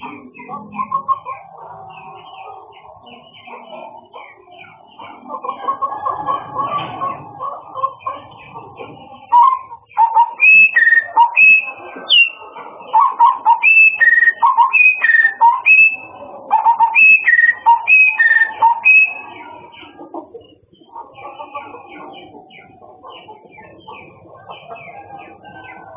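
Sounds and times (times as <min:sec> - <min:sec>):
soft bird calls: 0:00.0 - 0:25.9
songbird whistling phrases: 0:09.3 - 0:12.4, 0:13.0 - 0:19.4.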